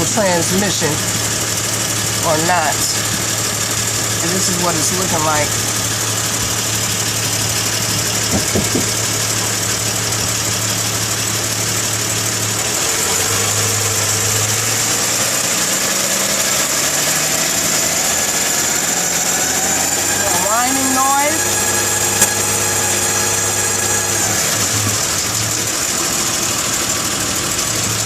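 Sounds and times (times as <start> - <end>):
car engine hum: 0.0 - 28.0
high-pitched whine: 12.7 - 25.7.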